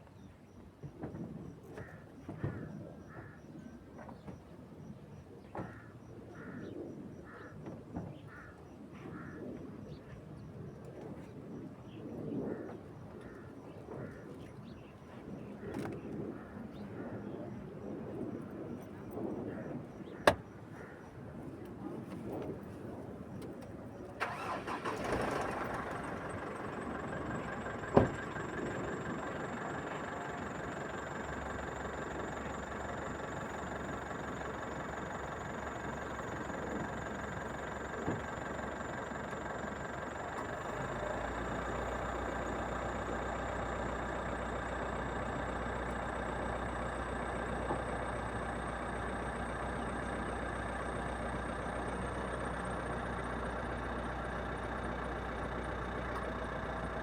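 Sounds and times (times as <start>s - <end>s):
truck engine running: 24.2s - 57.0s.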